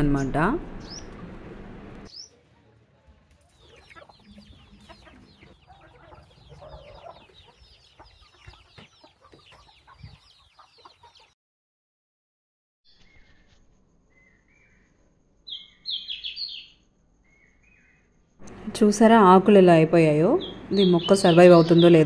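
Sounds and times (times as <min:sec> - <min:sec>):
faint bird chirps: 0:12.9 - 0:18.3.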